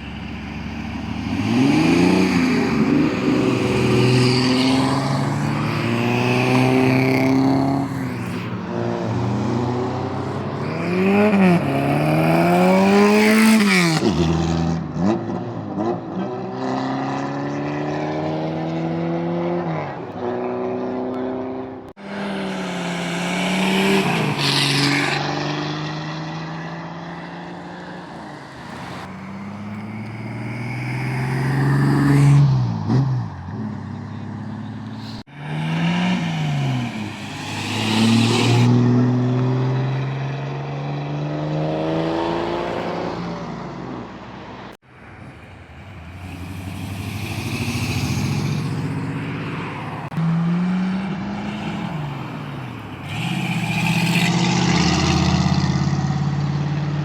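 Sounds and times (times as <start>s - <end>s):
vehicle engines revving and accelerating: 0.0s - 57.0s.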